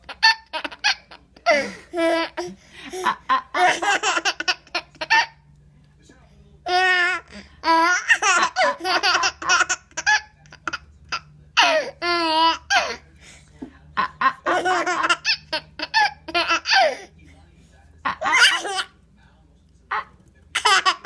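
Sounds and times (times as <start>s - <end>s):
baby laughing: 0.0s - 5.4s, 6.7s - 13.0s, 14.0s - 17.1s, 18.1s - 18.9s, 19.9s - 21.0s.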